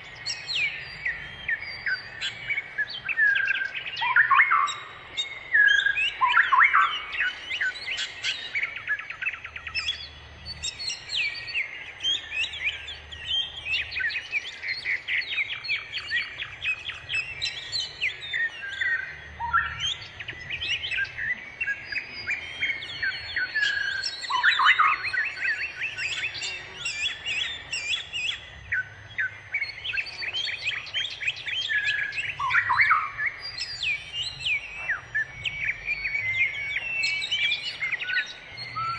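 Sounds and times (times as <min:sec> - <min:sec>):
birds chirping and twittering: 0:00.0 - 0:38.9.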